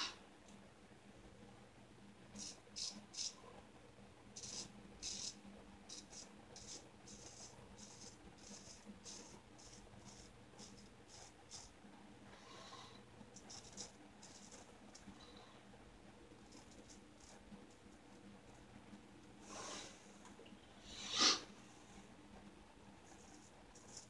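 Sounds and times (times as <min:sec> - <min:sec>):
razor scraping through whiskers: 0:02.4 - 0:03.4, 0:04.4 - 0:11.7, 0:13.4 - 0:14.7.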